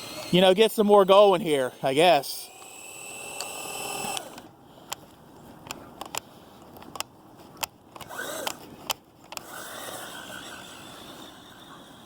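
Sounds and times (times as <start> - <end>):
electric motor whining: 0.0 - 4.5, 8.0 - 8.6
sharp clicks: 2.6 - 5.0, 5.6 - 9.5.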